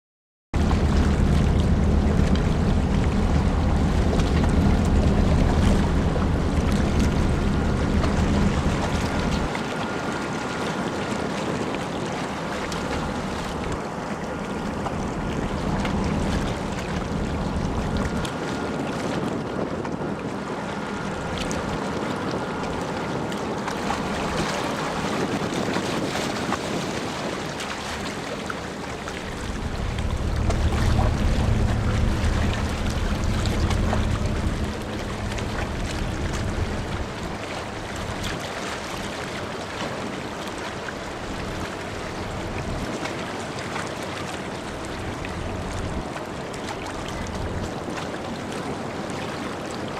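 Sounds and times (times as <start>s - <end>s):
ferry engines rumbling: 0.6s - 11.2s, 12.0s - 18.4s, 28.7s - 38.4s, 41.0s - 43.6s, 44.6s - 47.7s
wind noise on microphone: 0.6s - 40.2s, 40.8s - 49.5s.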